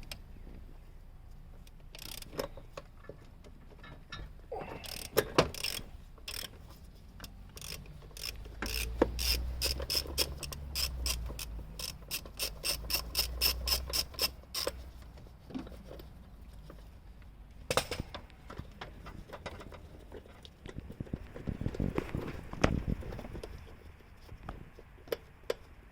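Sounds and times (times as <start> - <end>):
ratchet wrench clicking: 1.9 - 2.5, 4.8 - 14.9.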